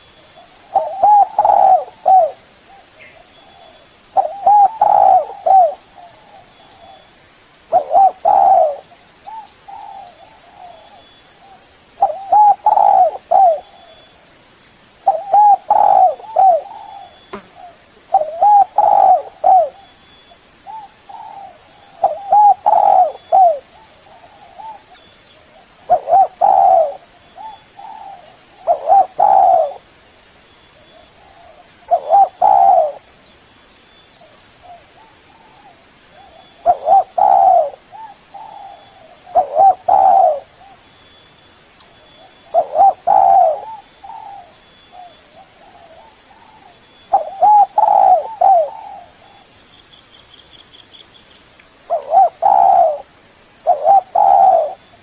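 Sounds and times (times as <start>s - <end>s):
dove cooing: 0.0s - 7.0s, 7.7s - 14.1s, 15.0s - 20.0s, 20.6s - 29.9s, 30.8s - 33.1s, 34.2s - 40.8s, 42.2s - 49.5s, 51.9s - 53.0s, 53.6s - 55.0s.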